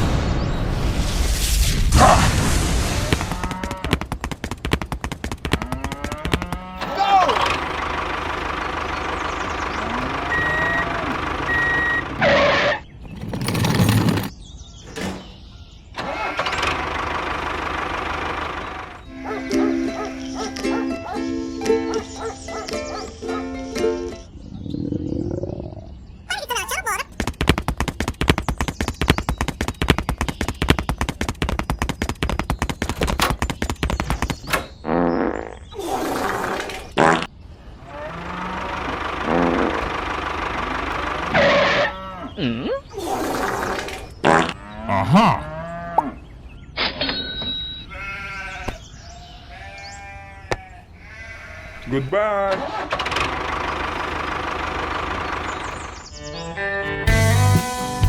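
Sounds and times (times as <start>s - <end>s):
vehicle running noise: 3.8s - 14.3s, 16.0s - 20.7s, 37.7s - 42.2s, 52.9s - 58.0s
rapid clatter of sharp knocks: 3.9s - 6.6s, 27.1s - 34.6s
reversing alarm beeps: 10.2s - 12.3s.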